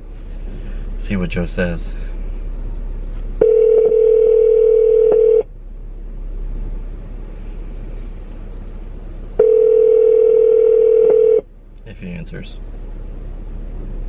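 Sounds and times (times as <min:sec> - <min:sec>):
telephone ringback tone: 0:03.4 - 0:05.5, 0:09.4 - 0:11.4.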